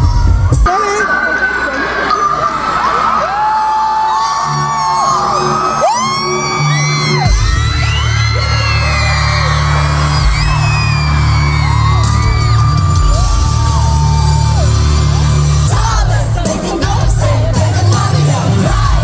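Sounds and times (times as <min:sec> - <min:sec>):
people shouting and whooping: 0:00.0 - 0:15.7
pop music with sung vocals: 0:00.0 - 0:19.0.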